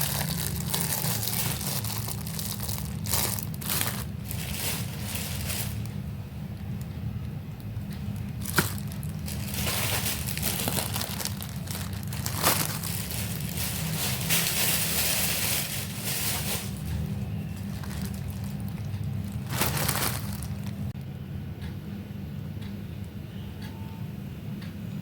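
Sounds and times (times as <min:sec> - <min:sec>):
packaging crinkling and rustling: 0:00.0 - 0:06.0, 0:07.6 - 0:21.0
steady low hum: 0:00.0 - 0:25.0.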